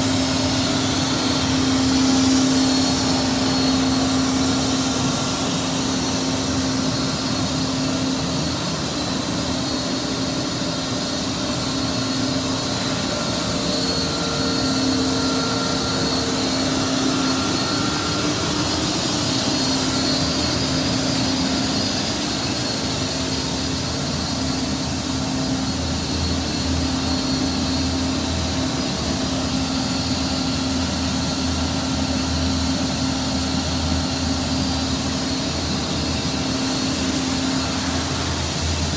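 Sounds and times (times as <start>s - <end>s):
blower hum: 0.0s - 38.9s
boiler burner roaring: 30.0s - 38.9s.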